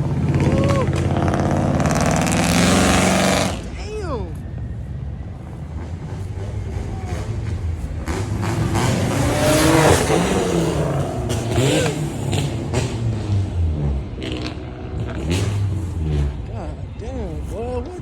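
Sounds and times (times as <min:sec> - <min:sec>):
car engine revving by: 0:00.0 - 0:03.8, 0:06.2 - 0:16.8.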